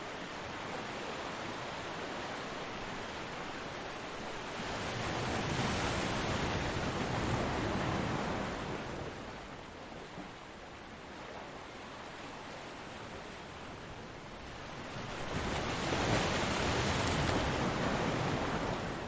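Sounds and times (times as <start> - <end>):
ocean waves breaking: 14.4 - 19.0.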